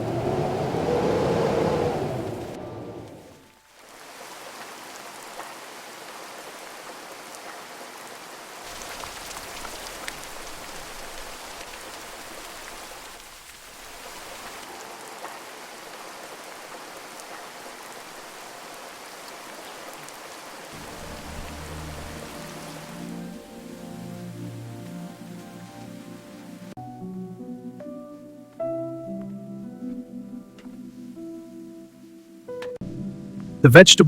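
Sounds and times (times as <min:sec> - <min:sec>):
heavy rain falling: 0:00.0 - 0:26.8.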